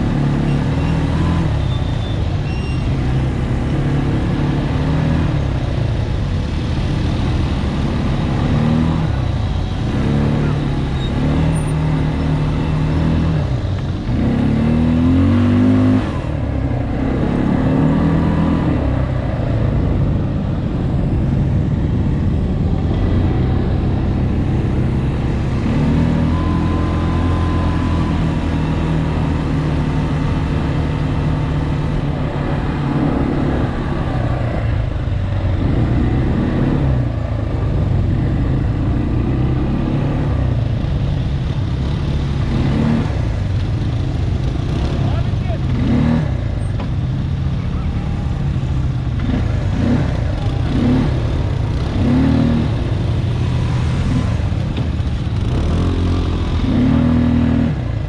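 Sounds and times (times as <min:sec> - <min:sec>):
low rumble of ride: 0:01.4 - 0:58.0
engine revving: 0:09.8 - 0:19.6, 0:41.8 - 0:43.6, 0:44.5 - 0:46.6, 0:49.1 - 0:58.0.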